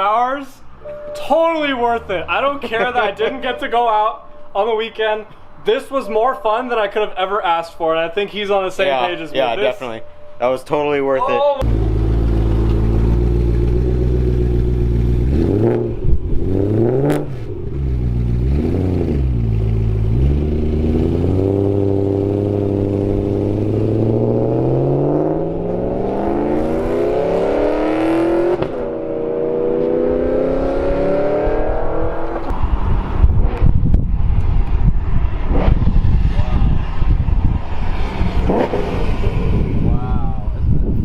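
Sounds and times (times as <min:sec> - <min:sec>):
car engine revving: 0:11.6 - 0:34.4, 0:35.2 - 0:39.8.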